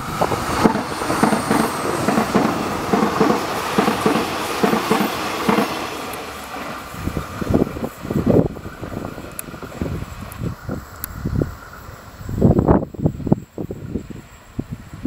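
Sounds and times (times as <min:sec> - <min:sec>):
train wheels clacking over rail joints: 0:00.0 - 0:08.4
train running rumble: 0:00.0 - 0:15.0.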